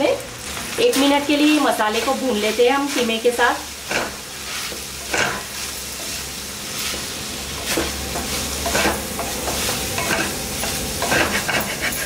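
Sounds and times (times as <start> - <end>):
meat and spices sizzling: 0.0 - 12.0
wooden spatula scraping pan: 6.8 - 12.0.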